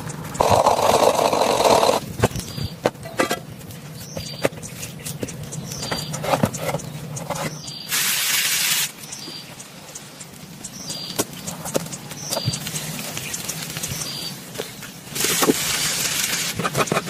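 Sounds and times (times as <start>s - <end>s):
dense hiss: 7.9s - 9.2s.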